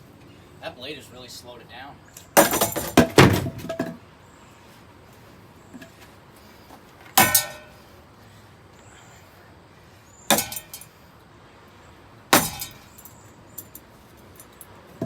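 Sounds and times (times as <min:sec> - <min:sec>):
objects striking fan blades: 0:07.1 - 0:07.8, 0:10.3 - 0:10.9, 0:12.4 - 0:14.7.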